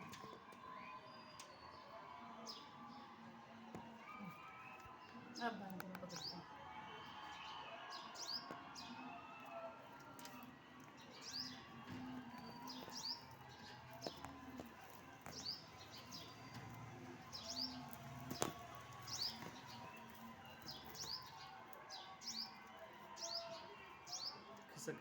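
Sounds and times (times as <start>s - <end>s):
nestling birds chirping: 10.2s - 24.4s.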